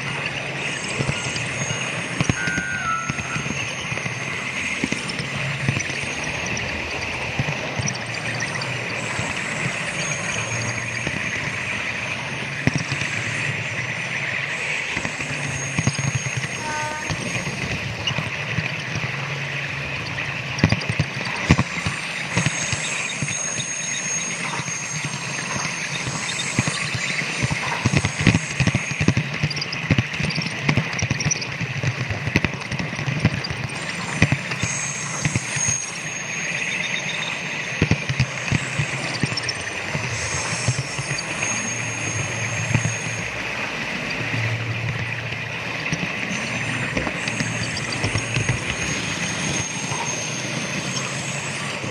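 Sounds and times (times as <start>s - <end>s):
high thin whine: 0.0s - 18.1s
model train running hum: 0.0s - 51.9s.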